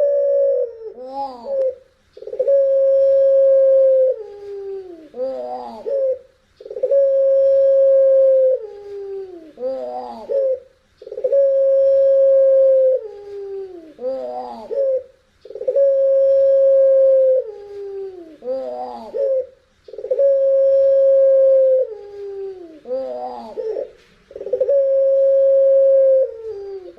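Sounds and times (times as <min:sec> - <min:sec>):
dove cooing long call: 0:00.0 - 0:26.9.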